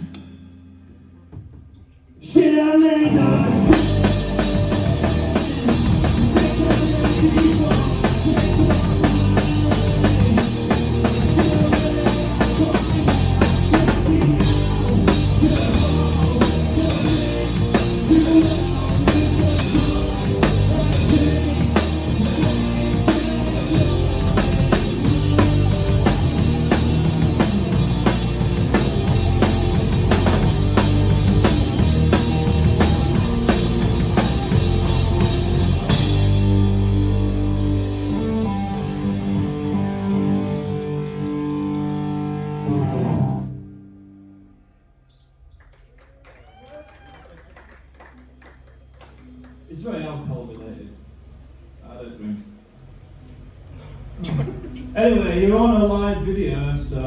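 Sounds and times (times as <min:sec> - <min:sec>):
rock song with drums: 0:00.0 - 0:01.8, 0:03.2 - 0:43.4.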